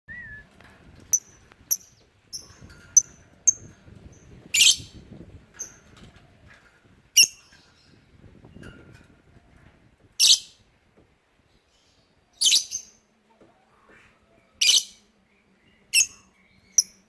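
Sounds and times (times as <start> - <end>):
bird high chirps: 11.8 - 13.0, 14.6 - 15.0.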